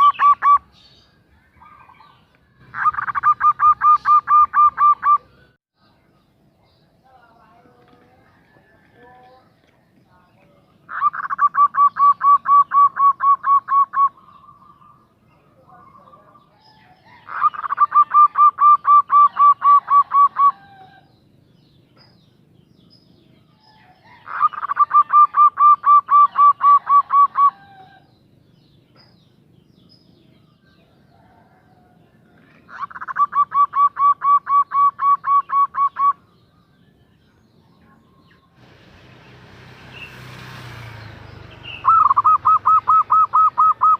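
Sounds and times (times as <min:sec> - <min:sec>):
dove cooing: 0:00.0 - 0:00.7, 0:01.6 - 0:05.4, 0:10.9 - 0:15.1, 0:16.8 - 0:21.1, 0:23.7 - 0:28.1, 0:31.1 - 0:36.3, 0:41.8 - 0:43.9.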